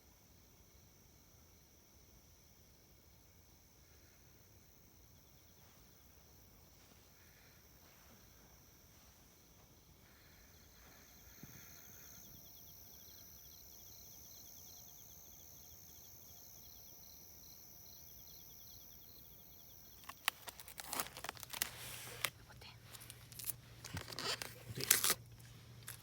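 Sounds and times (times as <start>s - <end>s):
insects chirping in trills: 0.0s - 26.0s
crackling and rustling clicks: 20.0s - 26.0s.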